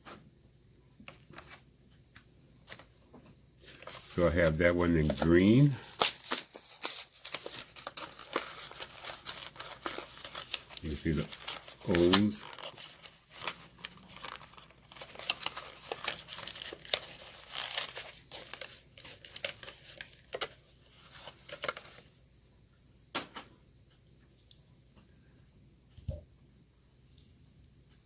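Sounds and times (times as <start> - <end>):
plastic package crinkling and tearing: 3.6 - 22.2.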